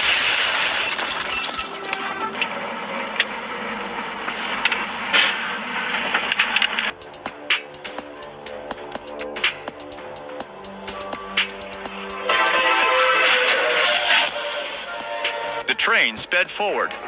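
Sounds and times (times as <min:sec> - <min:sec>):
breaking glass and debris: 0:00.0 - 0:06.9
electronic music with beat: 0:06.9 - 0:17.0
loud rushing noise: 0:06.9 - 0:17.0.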